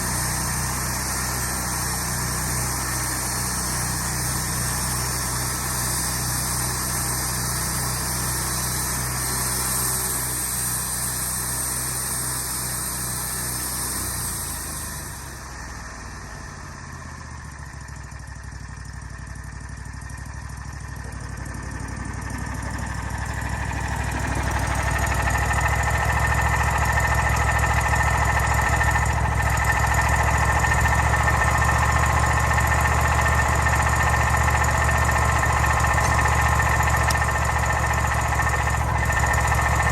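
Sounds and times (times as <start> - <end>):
engine running: 0.0 - 39.9
high steady whine: 20.8 - 39.9.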